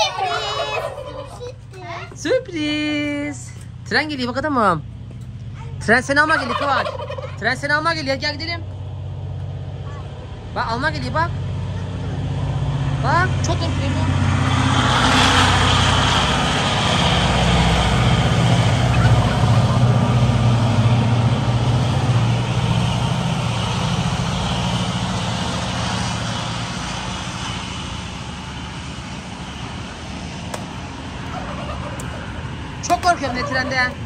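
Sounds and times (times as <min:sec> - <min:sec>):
train engine droning: 0:08.8 - 0:34.0.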